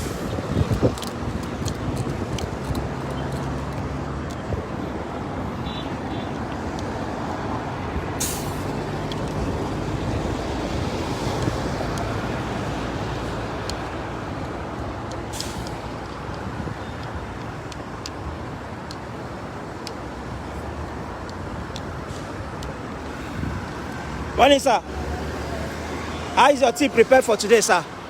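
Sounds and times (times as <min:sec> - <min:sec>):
vehicle engines passing: 0:00.0 - 0:28.0
short sharp hiss: 0:08.2 - 0:08.7, 0:15.3 - 0:15.8.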